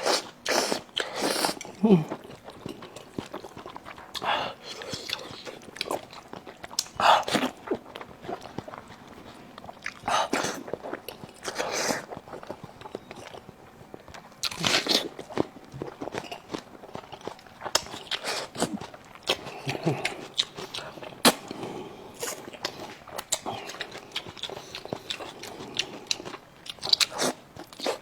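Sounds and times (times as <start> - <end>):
person chewing crunchy food: 0.0 - 28.0.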